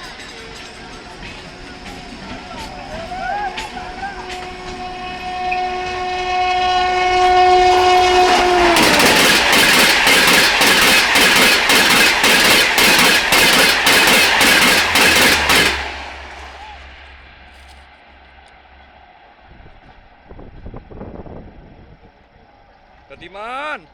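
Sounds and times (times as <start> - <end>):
locomotive air horn blast: 0.0 - 18.4
train wheels clattering over rails: 0.0 - 18.4.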